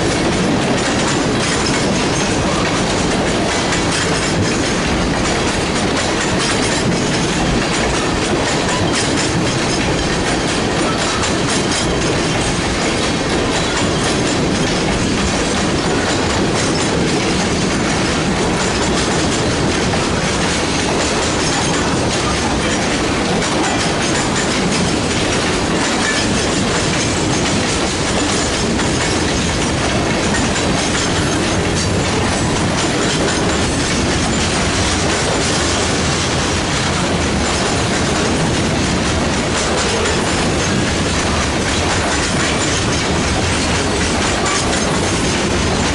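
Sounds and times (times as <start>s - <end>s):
train wheels rolling on rail: 0.0s - 45.9s.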